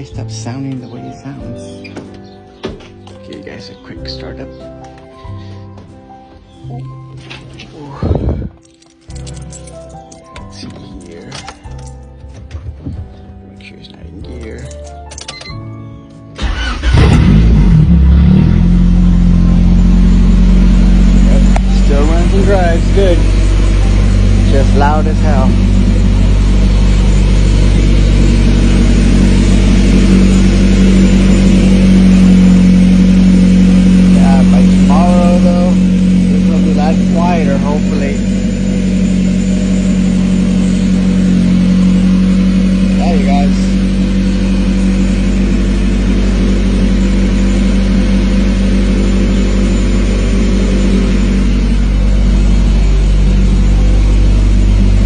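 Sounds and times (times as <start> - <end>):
loud car engine idling: 16.4 - 55.0.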